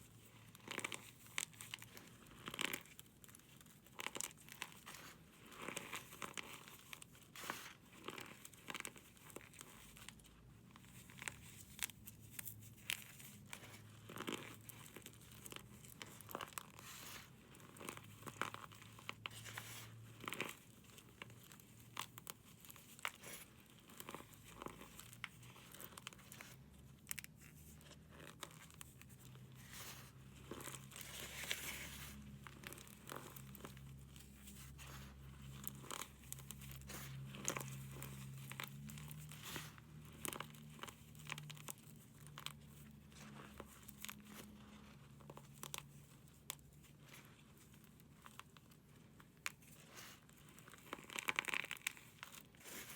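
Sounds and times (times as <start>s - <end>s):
brittle material crushed by hand: 49.3s - 52.9s.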